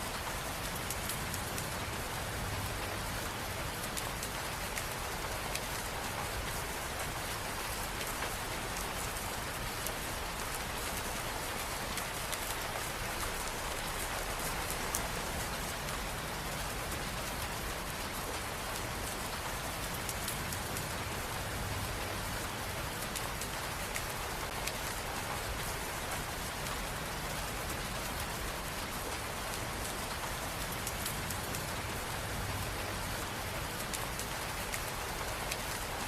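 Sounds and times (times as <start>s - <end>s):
steady rain hiss: 0.0s - 36.0s.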